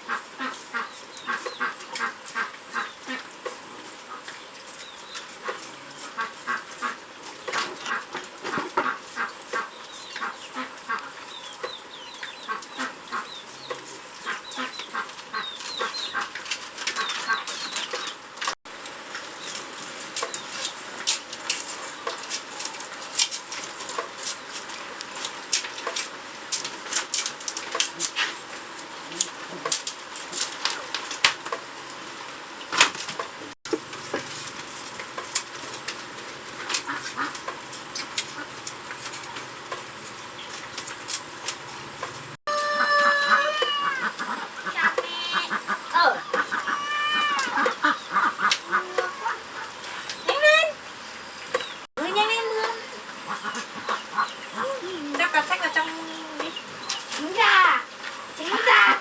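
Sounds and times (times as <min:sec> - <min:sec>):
chicken calling: 0:00.0 - 0:18.2, 0:42.5 - 0:50.8
sharp clicks and crackles: 0:14.8 - 0:31.6.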